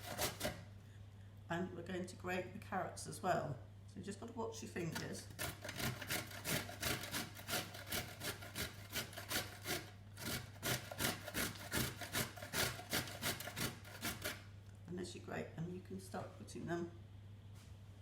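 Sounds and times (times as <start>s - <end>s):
carrots rasping on a hand grater: 0.0s - 0.6s, 4.9s - 14.5s.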